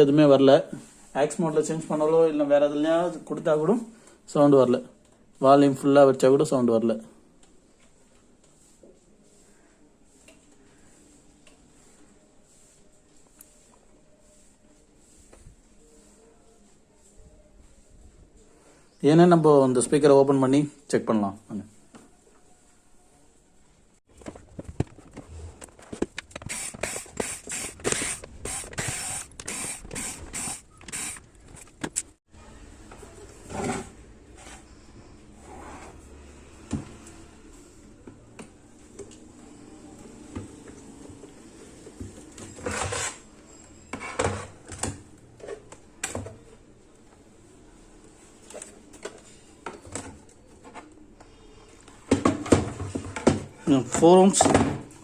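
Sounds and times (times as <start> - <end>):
screwdriver turning screws: 26.3 - 31.3
scrape on speaker cabinet: 33.4 - 37.4.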